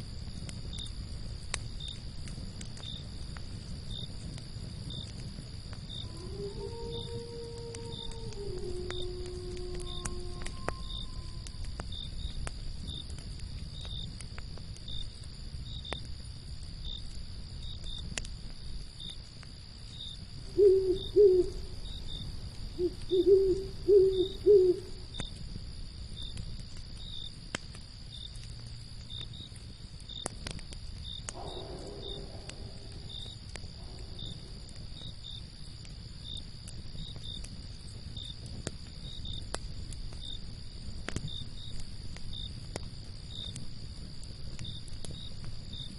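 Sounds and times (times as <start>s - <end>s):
campfire crackling and popping: 0.0s - 45.9s
crickets chirping: 0.0s - 45.9s
owl hooting: 20.5s - 21.8s, 22.8s - 25.0s.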